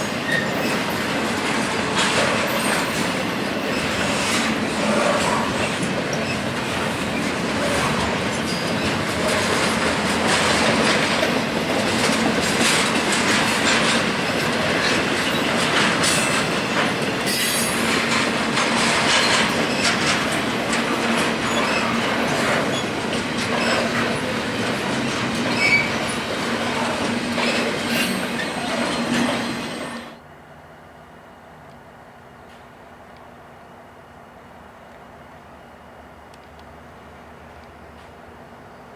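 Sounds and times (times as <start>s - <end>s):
train wheels squealing: 0.0s - 11.5s, 12.5s - 20.4s, 21.0s - 30.2s
freight train wheels clattering: 0.0s - 30.2s.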